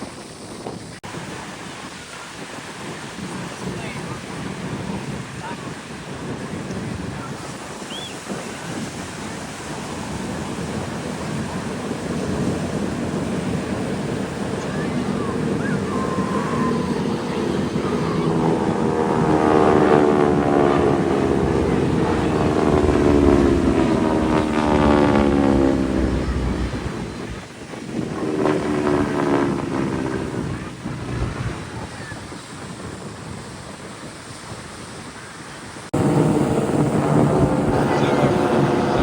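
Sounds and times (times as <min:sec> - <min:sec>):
wind on microphone: 0:00.0 - 0:39.0
propeller aircraft flying past: 0:08.1 - 0:32.2, 0:36.0 - 0:39.0.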